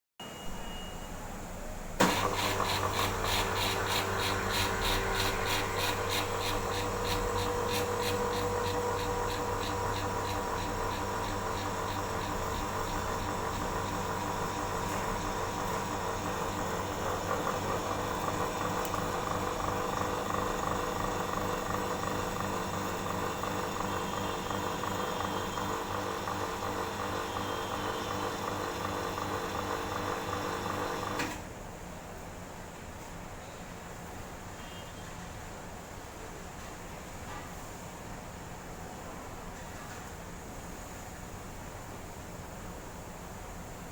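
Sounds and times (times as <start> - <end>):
vacuum pump pulsing and humming: 2.0 - 31.5.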